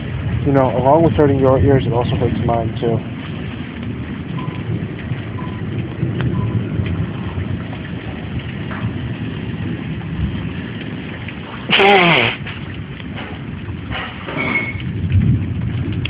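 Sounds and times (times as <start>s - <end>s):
steady rain hiss: 0.0s - 16.0s
person blowing nose: 11.7s - 12.4s.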